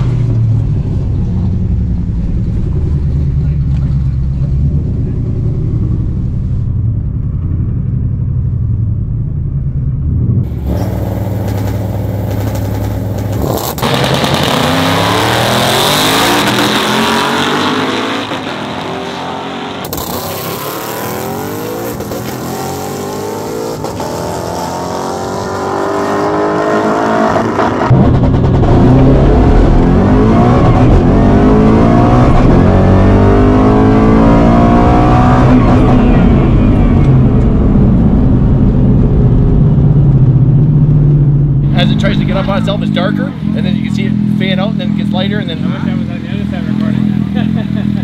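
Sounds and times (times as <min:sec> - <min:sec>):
drag car engine revving: 0:10.2 - 0:48.0.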